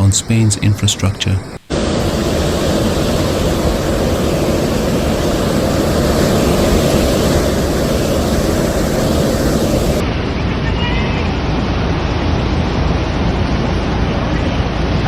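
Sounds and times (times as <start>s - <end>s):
wind: 0.0s - 15.0s
storm water rushing: 1.6s - 10.5s.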